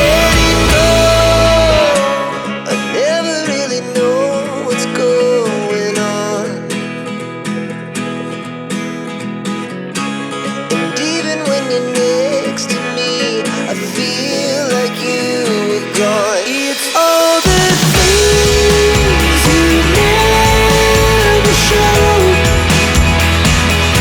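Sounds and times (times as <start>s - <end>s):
deep bass: 0.0s - 1.9s, 18.0s - 24.0s
plucked acoustic guitar music: 0.0s - 24.0s.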